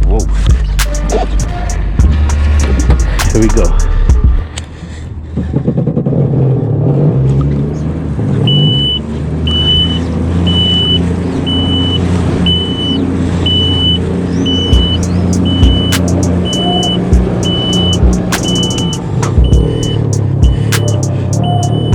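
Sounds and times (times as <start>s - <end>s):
high electronic beep: 8.5s - 20.2s, 20.8s - 21.9s
jet ski engine running: 8.8s - 21.9s.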